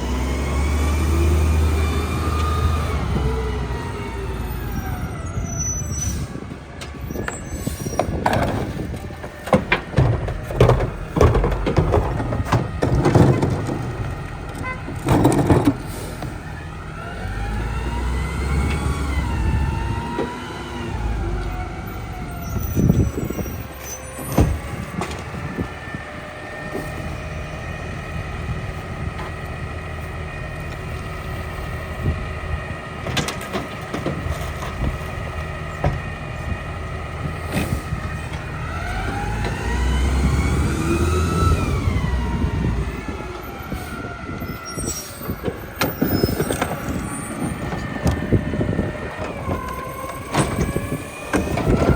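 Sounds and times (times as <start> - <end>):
garbage truck engine revving: 0.0 - 51.9.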